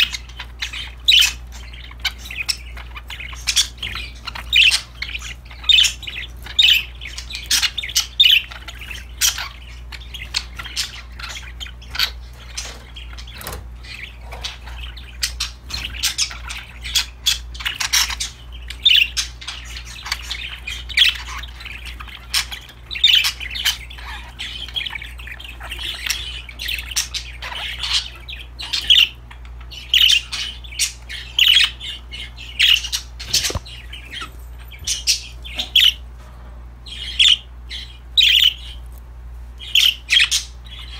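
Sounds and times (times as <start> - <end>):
budgies chirping and squawking: 0.0 - 40.9.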